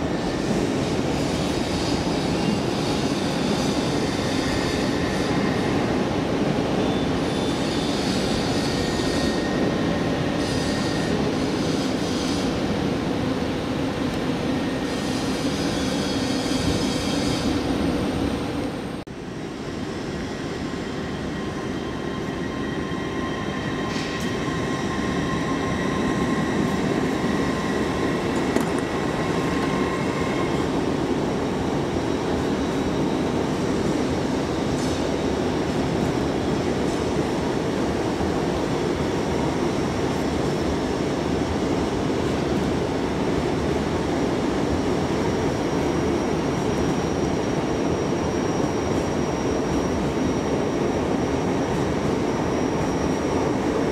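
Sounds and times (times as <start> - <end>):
train rumbling: 0.0 - 53.9.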